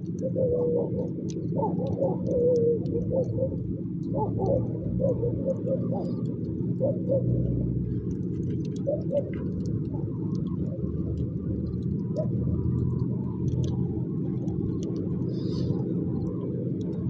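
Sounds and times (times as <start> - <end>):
low rumble: 2.7 - 17.0
wood fire crackling: 7.6 - 17.0.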